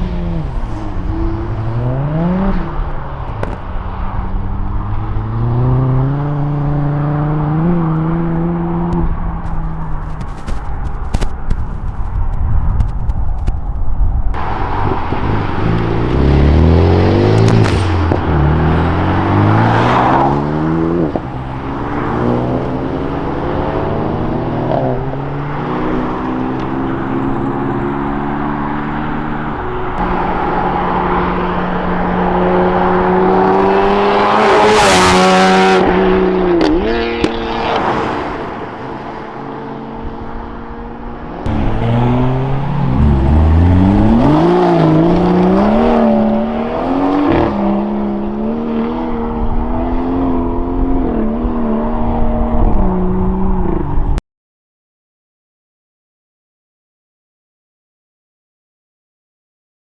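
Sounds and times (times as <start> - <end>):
cars accelerating: 14.4 - 54.2.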